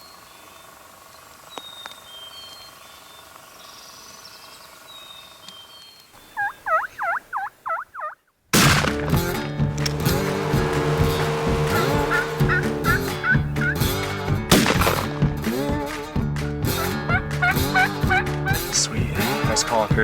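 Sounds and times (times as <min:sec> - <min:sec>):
faint songbird chirps: 0:00.0 - 0:08.3
wild turkey calling: 0:05.0 - 0:08.4, 0:11.6 - 0:14.0, 0:16.7 - 0:20.0
loud music: 0:16.6 - 0:20.0.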